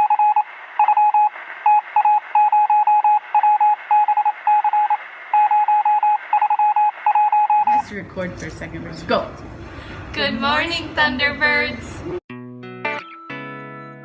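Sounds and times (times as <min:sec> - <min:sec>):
morse code beeps: 0:00.0 - 0:07.8.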